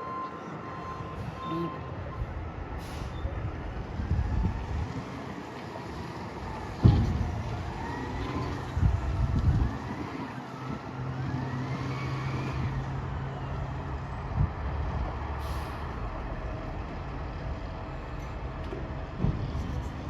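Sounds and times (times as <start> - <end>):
garbage truck engine whining: 0.0 - 20.0
thump: 6.8 - 7.5, 19.2 - 19.5
air brake hiss: 15.4 - 15.9.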